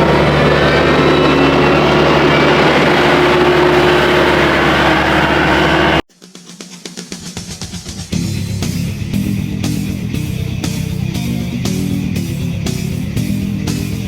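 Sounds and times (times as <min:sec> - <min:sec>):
vehicle engine running: 0:00.0 - 0:06.1, 0:07.4 - 0:14.0
rock music with regular beat: 0:06.1 - 0:14.0.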